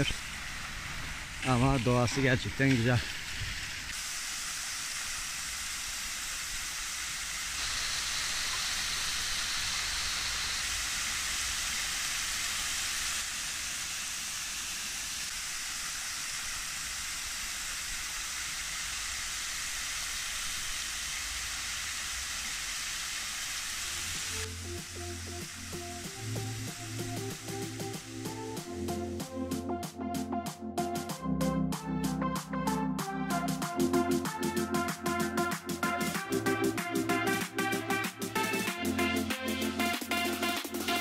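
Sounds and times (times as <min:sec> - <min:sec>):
waterfall splashing on rocks: 0:00.0 - 0:28.5.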